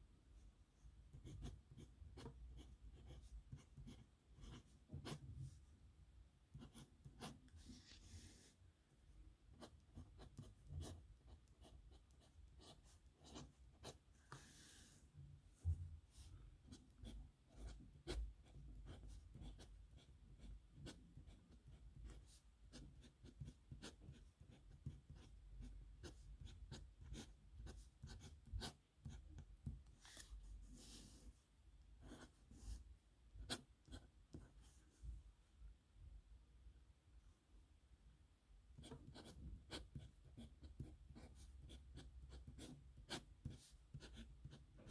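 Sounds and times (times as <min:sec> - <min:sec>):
pen scratching on paper: 0:01.1 - 0:05.3, 0:06.6 - 0:08.5, 0:09.5 - 0:14.7, 0:16.6 - 0:25.4, 0:26.0 - 0:29.5, 0:32.0 - 0:32.7, 0:33.4 - 0:34.6, 0:38.8 - 0:44.9.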